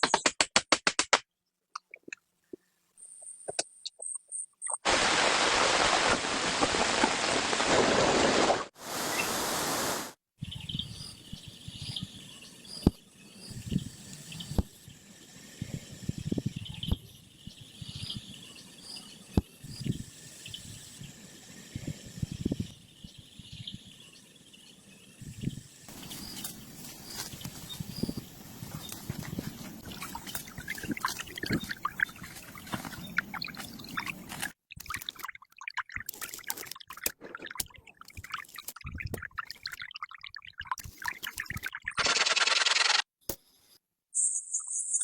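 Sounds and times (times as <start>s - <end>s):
loud steady hiss: 8.8s - 10.2s, 25.2s - 29.9s
faint chirps: 10.4s - 34.4s.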